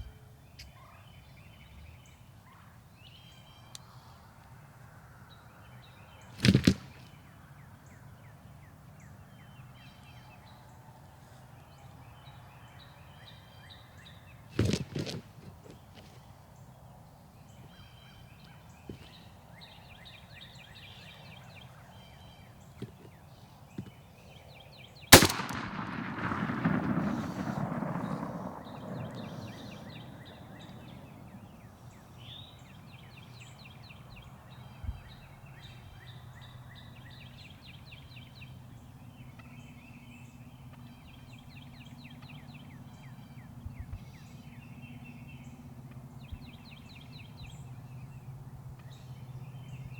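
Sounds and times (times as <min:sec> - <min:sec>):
small birds chattering: 0:05.3 - 0:49.9
shotgun blast: 0:25.1 - 0:31.2
low rumbling echo: 0:25.2 - 0:31.9.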